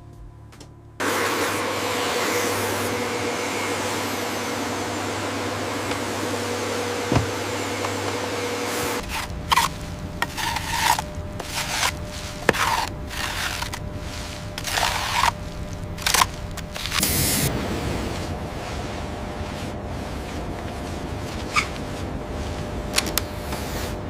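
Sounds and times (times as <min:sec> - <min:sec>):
machine hum: 0:00.0 - 0:24.0
brush scrubbing a surface: 0:05.3 - 0:17.4, 0:18.5 - 0:24.0.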